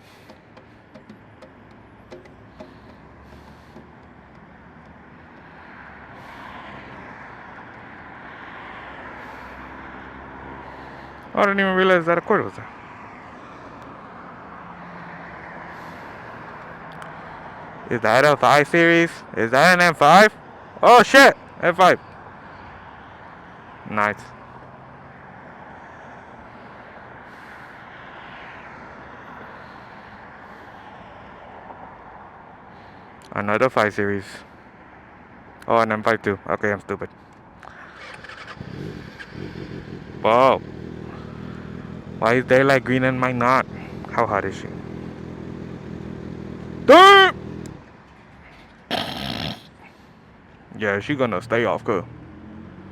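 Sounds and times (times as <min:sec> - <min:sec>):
traffic rushing: 0:00.0 - 0:52.9
wind: 0:00.0 - 0:52.9
motorcycle engine idling: 0:37.7 - 0:47.9
vehicle swishing past: 0:52.0 - 0:52.9.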